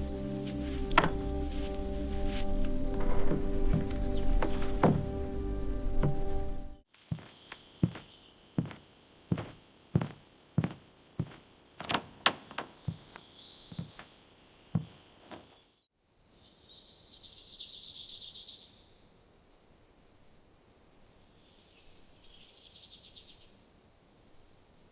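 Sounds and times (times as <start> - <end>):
sharp knocks: 3.3 - 5.2.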